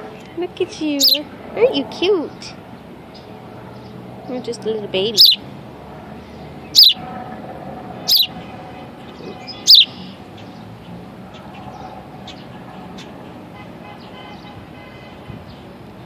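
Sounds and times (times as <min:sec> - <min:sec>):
baby sparrow chirping: 0:00.8 - 0:03.2, 0:03.8 - 0:05.5, 0:06.3 - 0:07.0, 0:07.9 - 0:10.7.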